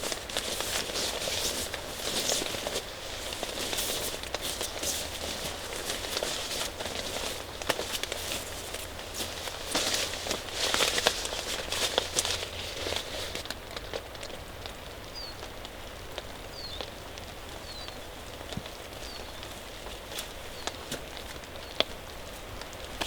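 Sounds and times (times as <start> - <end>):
rain pattering: 0.0 - 23.0
small bird chirps: 15.1 - 15.4, 16.5 - 16.9.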